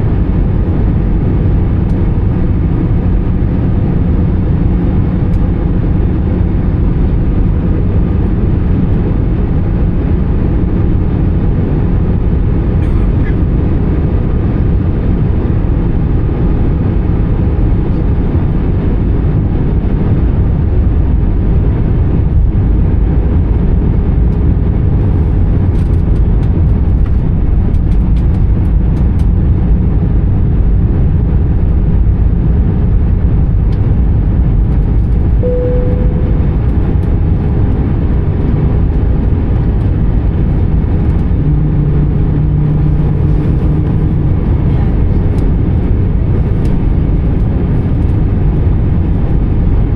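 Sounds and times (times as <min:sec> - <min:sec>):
jet engine rumble in cabin: 0:00.0 - 0:49.9
low hum: 0:00.0 - 0:49.9
short tone: 0:35.4 - 0:37.5.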